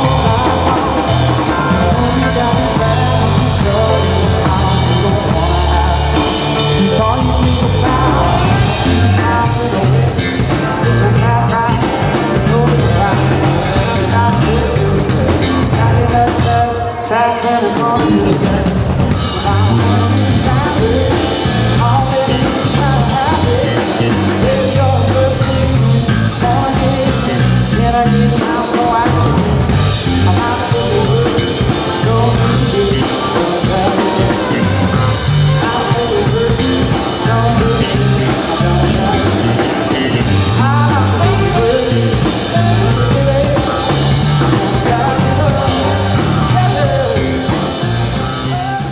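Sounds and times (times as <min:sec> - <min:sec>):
drum kit: 0:00.0 - 0:48.9
person singing: 0:00.0 - 0:48.9
rock band playing: 0:00.0 - 0:48.9.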